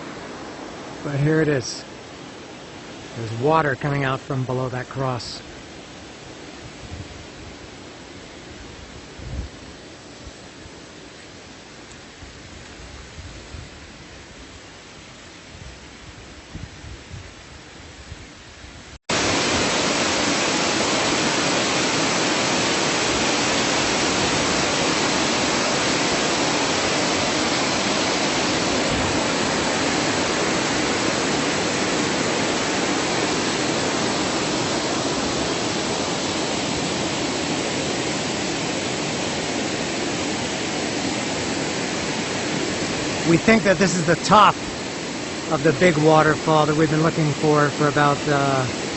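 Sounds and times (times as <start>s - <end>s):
waterfall rushing: 0.0s - 6.3s, 19.1s - 48.9s.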